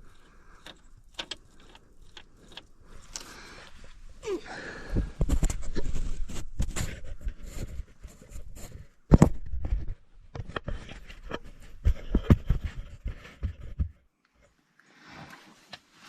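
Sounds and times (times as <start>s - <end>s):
tools clicking and scraping: 0.0s - 3.8s.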